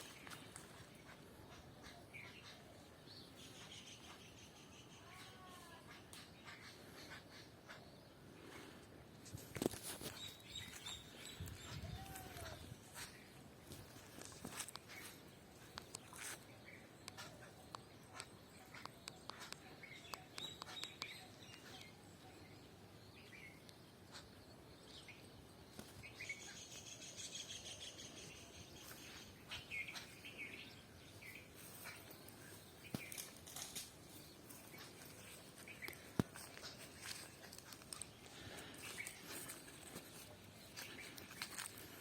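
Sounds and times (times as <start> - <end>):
birds chirping: 0.0 - 42.0
soft footsteps: 31.2 - 42.0.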